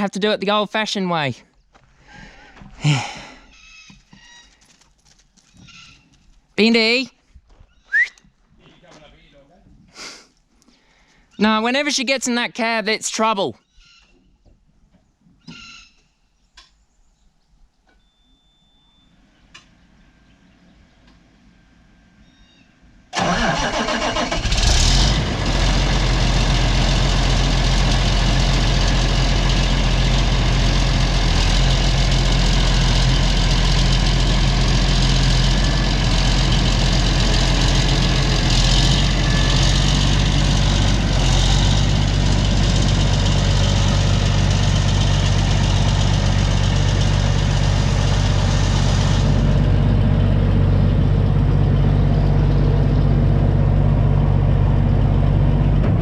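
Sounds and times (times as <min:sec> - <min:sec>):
diesel engine starting and idling: 0:23.0 - 0:56.0.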